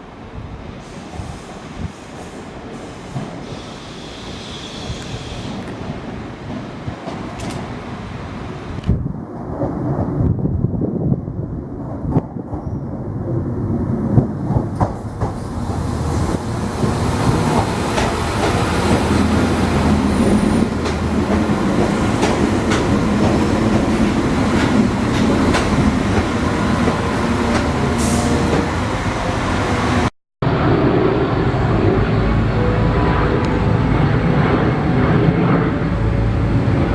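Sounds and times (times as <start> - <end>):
diesel train running: 14.8 - 36.9.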